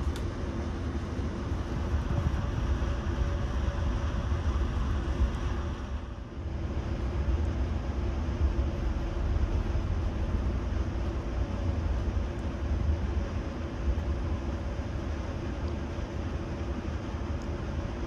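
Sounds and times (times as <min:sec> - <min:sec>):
faint drone: 0:00.0 - 0:18.0
train wheels rumbling on rails: 0:00.0 - 0:18.0.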